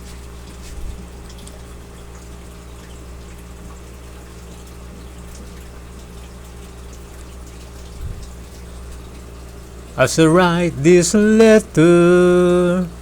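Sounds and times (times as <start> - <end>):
even hiss: 10.0 - 12.9.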